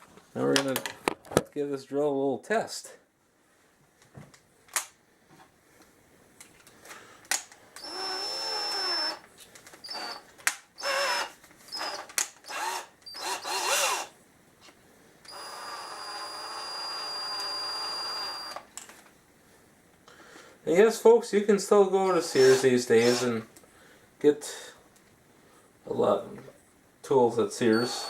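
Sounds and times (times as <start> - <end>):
cordless drill motor running: 7.8 - 9.2, 9.8 - 10.2, 10.8 - 14.1, 15.3 - 18.6, 22.0 - 23.4.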